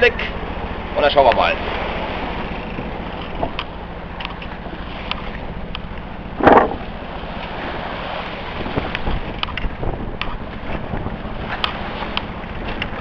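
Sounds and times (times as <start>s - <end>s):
low steady hum: 0.0s - 13.0s
water rushing past hull: 0.0s - 13.0s
wave splashing against boat: 0.0s - 13.0s
wind noise: 6.3s - 7.0s, 7.6s - 13.0s.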